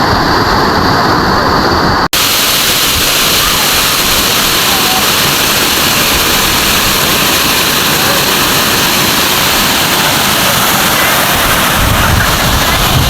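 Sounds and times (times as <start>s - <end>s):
waterfall rushing: 0.0s - 13.0s
deep rumble: 6.0s - 13.0s.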